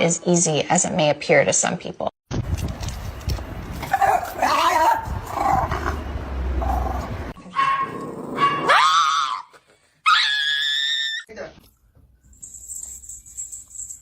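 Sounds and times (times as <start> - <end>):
dog barking and grumbling: 3.9 - 8.8.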